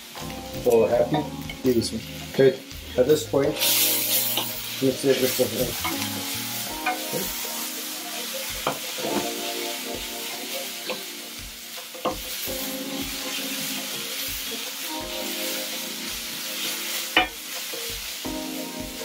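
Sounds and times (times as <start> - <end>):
vegetables sizzling in oil: 0.0 - 19.0
spoon knocking against pan: 11.8 - 12.4, 17.2 - 17.4.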